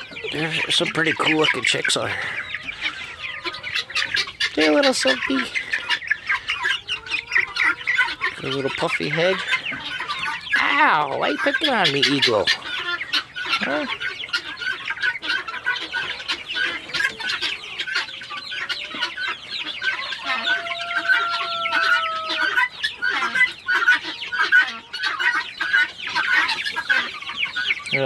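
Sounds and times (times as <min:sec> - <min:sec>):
chicks cheeping: 0:00.0 - 0:28.0.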